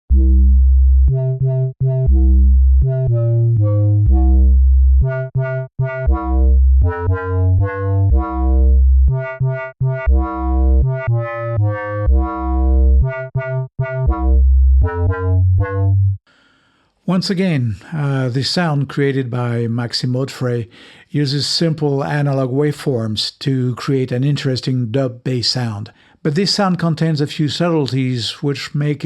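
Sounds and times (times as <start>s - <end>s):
synthesizer bassline: 0.1s - 16.2s.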